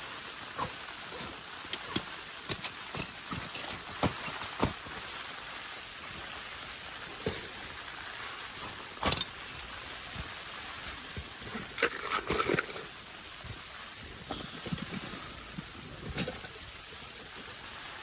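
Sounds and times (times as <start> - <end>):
handling knocks and rustles: 0.6 - 5.1, 8.6 - 9.5
blizzard wind and blowing snow: 12.9 - 18.0.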